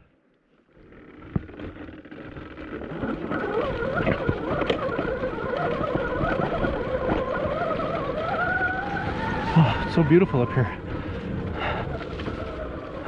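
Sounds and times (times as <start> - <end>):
bike knocking on rough trail: 0.7 - 13.0
wind noise on microphone: 2.8 - 13.0
electric motor whining: 3.0 - 11.8.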